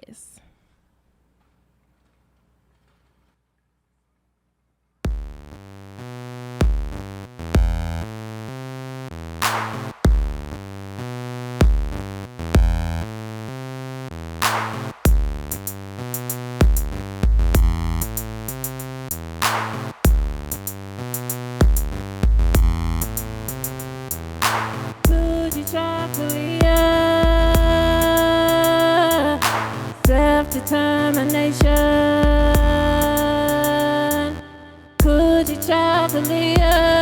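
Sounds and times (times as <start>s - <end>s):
drum machine beat: 5.1s - 5.5s, 6.6s - 7.0s, 7.6s - 7.9s, 9.4s - 10.6s, 11.6s - 12.0s, 12.6s - 12.9s, 14.4s - 33.9s, 35.0s - 37.0s
synthesizer bass and chords: 5.1s - 37.0s.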